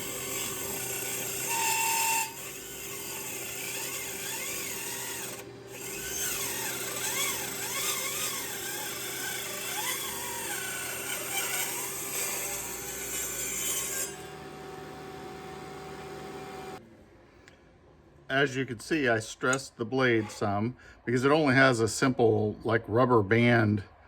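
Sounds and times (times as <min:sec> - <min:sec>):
table saw cutting wood: 0:00.0 - 0:16.8.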